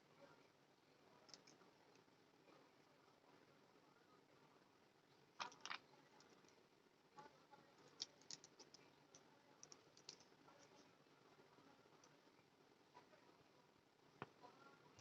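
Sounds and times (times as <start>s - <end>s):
faint clicks and light taps: 1.2s - 2.1s, 7.8s - 11.0s.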